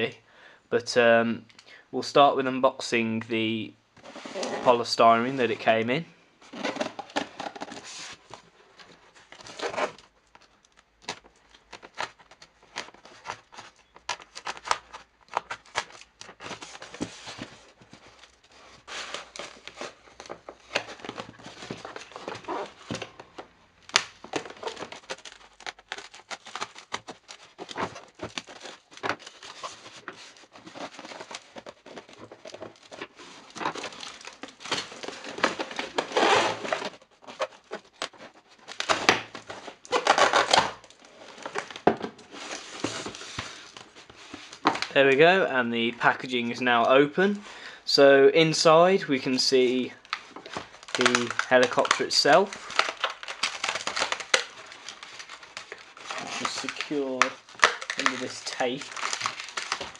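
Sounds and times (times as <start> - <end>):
polystyrene packaging crinkling: 9.2 - 45.3, 48.5 - 59.9.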